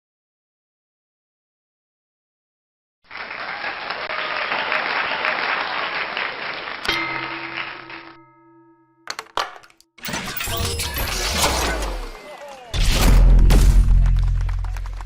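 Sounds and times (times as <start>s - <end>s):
crowd applause: 3.1s - 8.2s, 13.9s - 15.0s
musical chord ringing: 6.9s - 9.0s.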